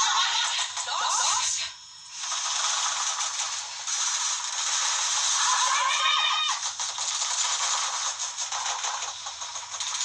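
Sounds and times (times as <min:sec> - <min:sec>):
computer keyboard clattering: 0:02.2 - 0:10.0.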